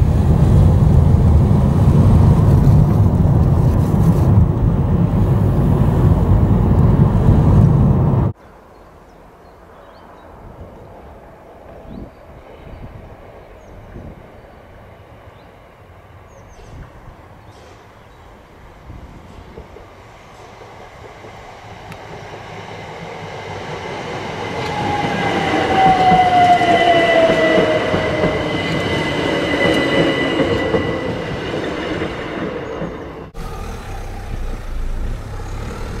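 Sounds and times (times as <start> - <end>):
electric train passing: 0.0 - 8.4, 9.6 - 36.0
outdoor background: 0.0 - 36.0
train whine falling in pitch: 24.5 - 32.0.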